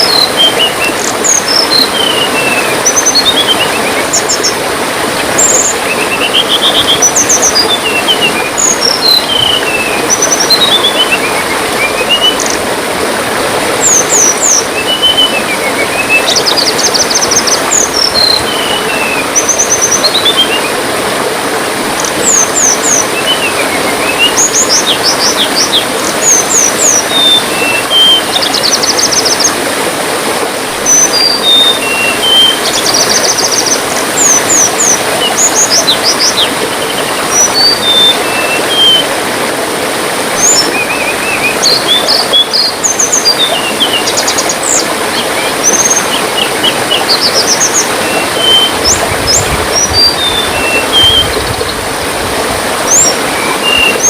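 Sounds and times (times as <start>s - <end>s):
songbird chirping and trilling: 0.0s - 4.5s, 5.4s - 12.6s, 13.8s - 20.7s, 40.4s - 51.8s
trickling water: 0.0s - 54.0s.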